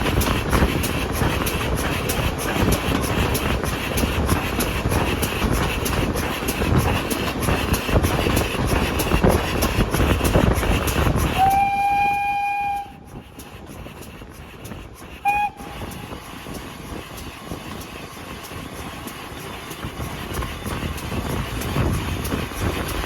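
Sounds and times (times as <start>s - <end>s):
train clattering: 0.0s - 23.0s
train horn blast: 11.4s - 13.1s.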